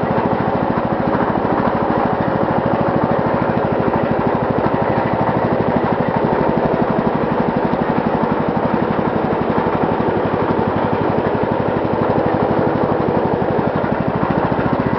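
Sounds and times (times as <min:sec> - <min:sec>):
lawn mower engine running: 0:00.0 - 0:14.9.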